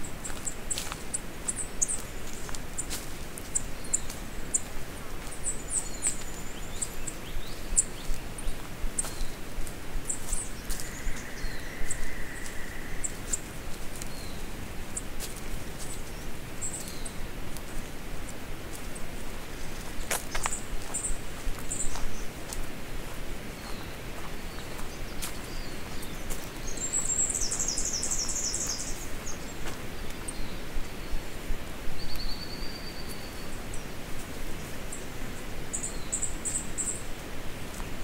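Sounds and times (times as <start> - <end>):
steady low hiss: 0.0 - 38.0
bird chirps: 24.5 - 29.5.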